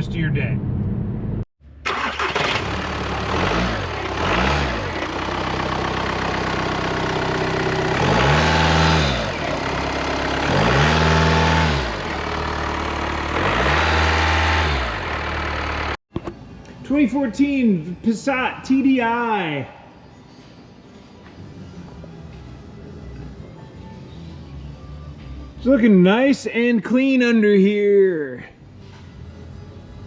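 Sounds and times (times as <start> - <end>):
diesel car engine revving: 1.8 - 16.0.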